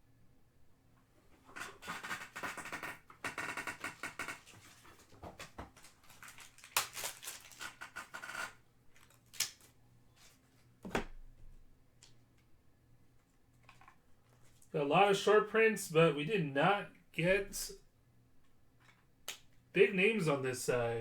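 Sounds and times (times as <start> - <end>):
cards rustling and shuffling: 4.5 - 8.2.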